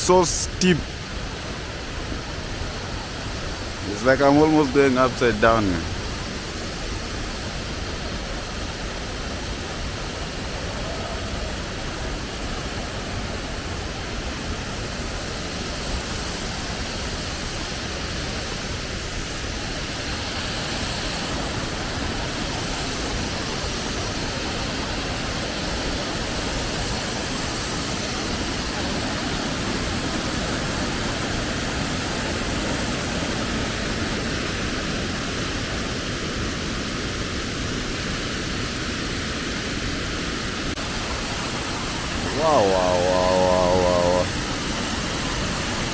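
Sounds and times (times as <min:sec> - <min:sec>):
waterfall rushing: 0:00.0 - 0:16.7, 0:40.4 - 0:45.9.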